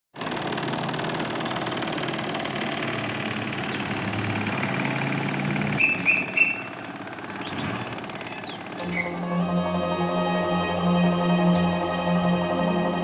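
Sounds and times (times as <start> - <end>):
small motor running: 0.2 - 8.8
high chirping tones: 8.8 - 13.0.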